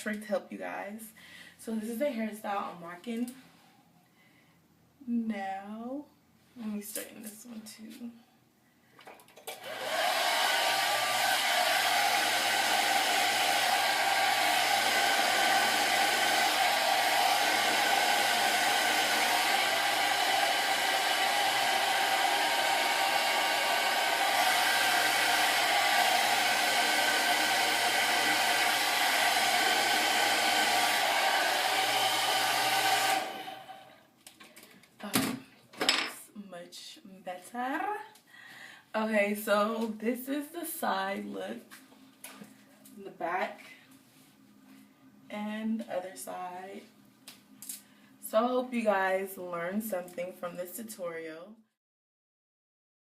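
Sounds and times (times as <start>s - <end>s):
hair dryer running: 9.5s - 34.0s.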